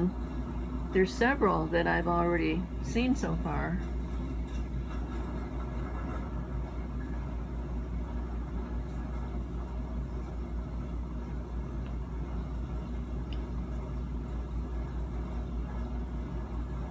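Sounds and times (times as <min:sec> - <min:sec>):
train rumbling on track: 0:00.0 - 0:11.5.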